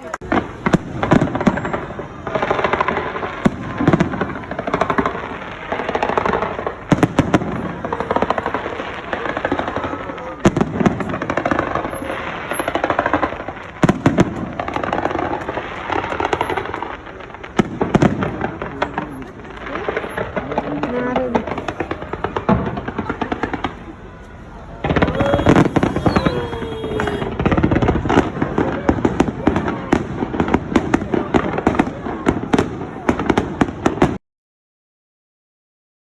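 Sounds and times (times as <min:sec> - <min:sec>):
fireworks crackling: 0:00.0 - 0:34.2
firework shell bursts: 0:24.8 - 0:28.6.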